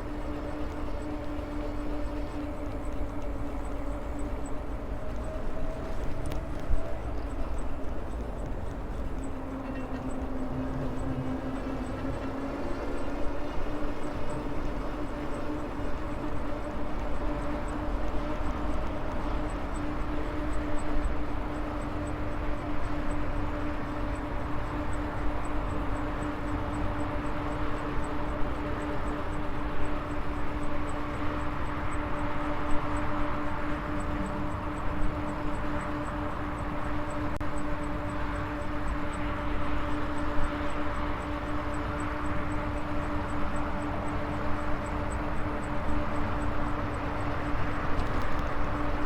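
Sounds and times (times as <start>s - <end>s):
road noise: 28.3s - 49.0s.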